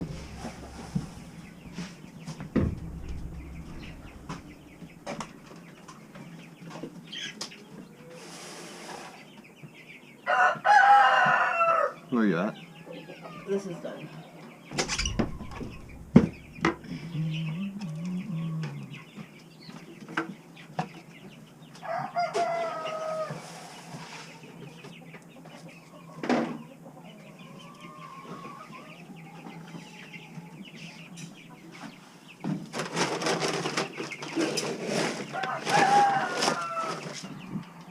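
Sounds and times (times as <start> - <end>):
sharp knocks: 0.0 - 5.5, 14.8 - 17.4
chickens clucking: 0.0 - 37.9.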